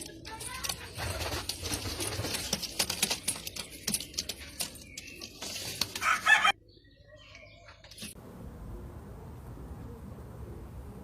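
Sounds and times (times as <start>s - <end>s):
scratching and rustling: 0.0s - 6.5s
birds clucking: 0.0s - 8.2s.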